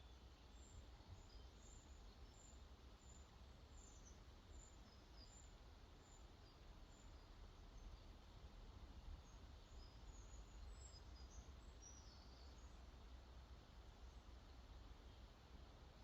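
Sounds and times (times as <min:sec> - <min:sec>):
faint rush of water: 0:00.0 - 0:16.0.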